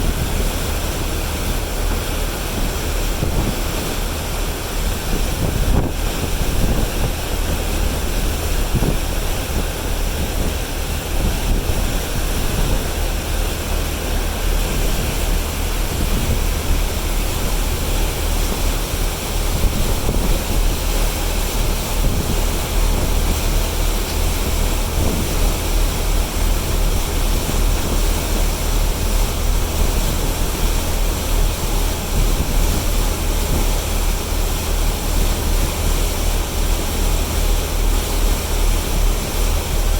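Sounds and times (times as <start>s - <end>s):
wind buffeting microphone: 0.0s - 35.0s
low engine drone: 0.0s - 39.9s
water rushing: 0.0s - 39.9s.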